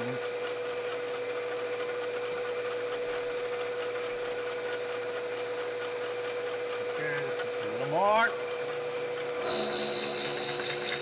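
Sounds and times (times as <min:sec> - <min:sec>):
machine motor humming: 0:09.3 - 0:11.0.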